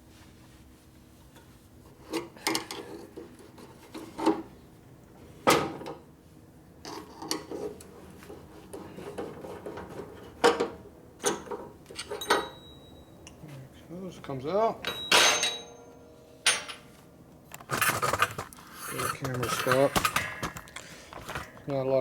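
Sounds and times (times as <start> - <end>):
metal scraping and rubbing: 17.6 - 20.1.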